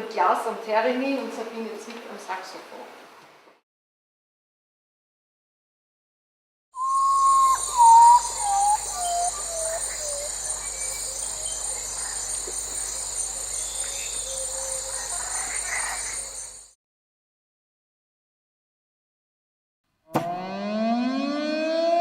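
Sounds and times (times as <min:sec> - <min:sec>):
theremin gliding tone: 0:06.8 - 0:11.7, 0:20.3 - 0:22.0
high cricket-like chirring: 0:06.8 - 0:16.8.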